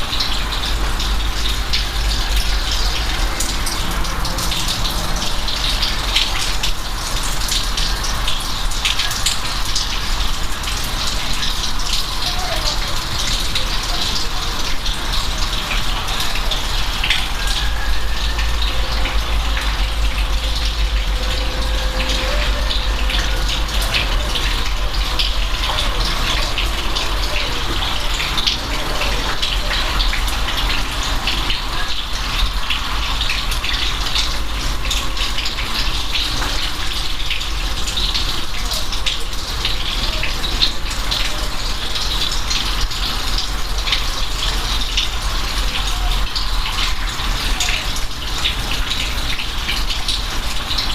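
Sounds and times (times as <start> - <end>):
heavy rain: 0.0 - 50.9
constant low rumble: 18.2 - 28.6.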